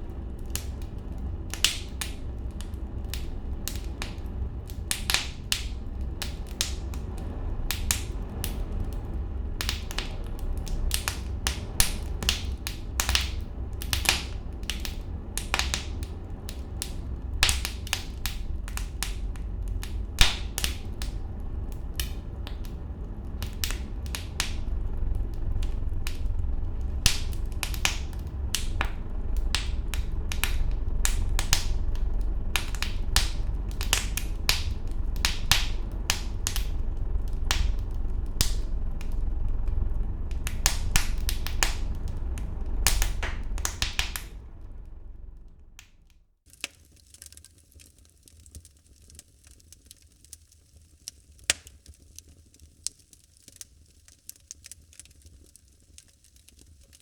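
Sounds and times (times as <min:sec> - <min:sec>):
fire crackling and popping: 0:00.0 - 0:57.0
low rumble of fire: 0:00.0 - 0:57.0.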